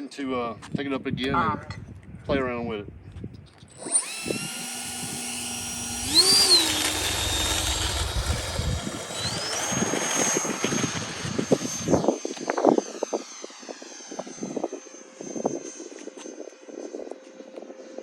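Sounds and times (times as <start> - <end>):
wind rumble on microphone: 0.3 - 18.0
electric fan motor whine: 3.6 - 18.0.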